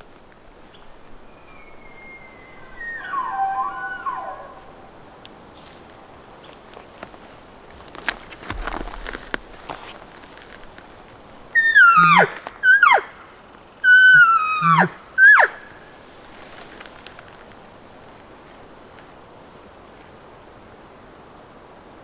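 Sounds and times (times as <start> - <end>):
elk bugling whistles: 1.2 - 5.2, 11.6 - 15.9.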